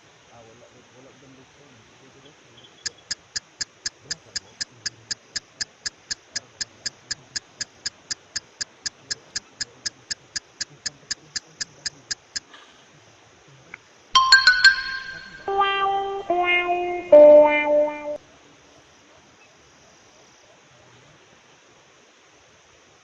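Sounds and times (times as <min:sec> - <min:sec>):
rapid even ticking: 0:02.8 - 0:12.5.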